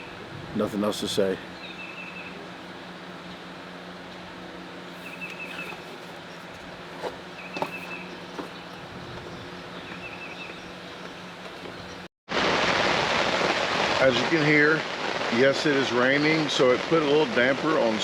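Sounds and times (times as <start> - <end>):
steady low hum: 0.0 - 12.1
steady rain: 12.3 - 18.0.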